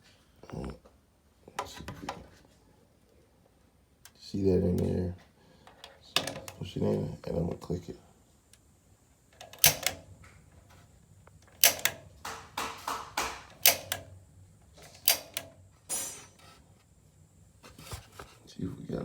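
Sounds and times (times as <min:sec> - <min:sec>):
igniter button clicking: 0:09.4 - 0:10.1, 0:11.6 - 0:12.0, 0:13.6 - 0:14.1.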